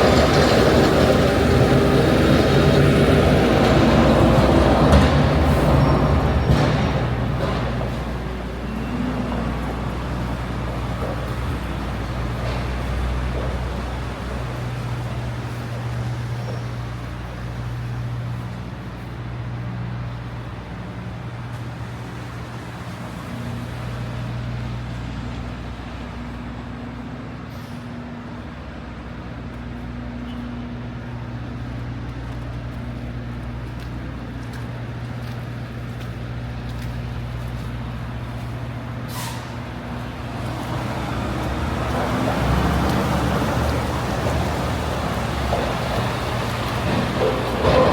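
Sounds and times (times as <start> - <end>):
large vehicle engine humming: 0.0 - 47.9
passing traffic: 0.0 - 47.9
short hiss: 39.1 - 39.6.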